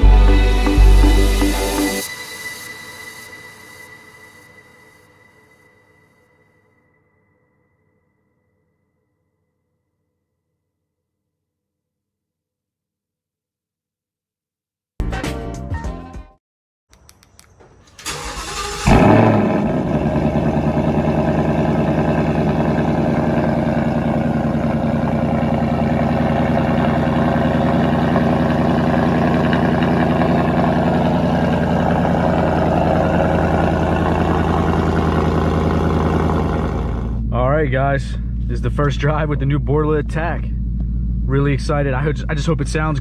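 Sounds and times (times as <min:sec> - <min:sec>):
starter motor cranking: 0:18.0 - 0:37.2
car engine revving and idling: 0:18.1 - 0:37.3.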